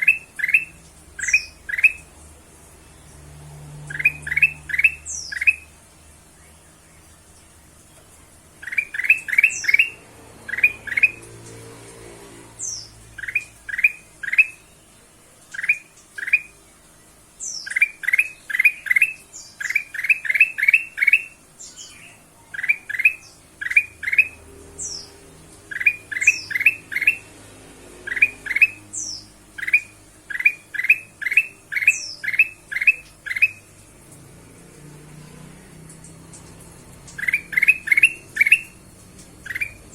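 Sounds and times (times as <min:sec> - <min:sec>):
bulbul calling: 0:00.0 - 0:02.1, 0:03.9 - 0:05.7, 0:08.6 - 0:11.3, 0:12.6 - 0:14.7, 0:15.5 - 0:16.6, 0:17.4 - 0:25.1, 0:25.7 - 0:27.3, 0:28.0 - 0:33.8, 0:36.0 - 0:38.8, 0:39.4 - 0:39.9.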